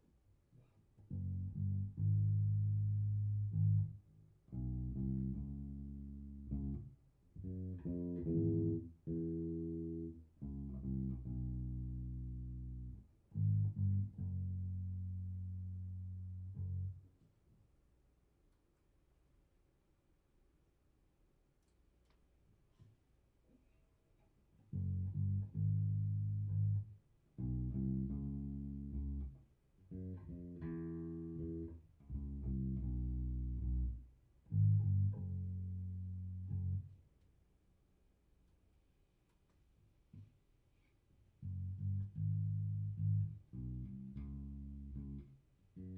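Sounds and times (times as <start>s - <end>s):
electric bass notes plucked: 1.0s - 17.0s, 24.8s - 37.0s, 41.4s - 45.9s.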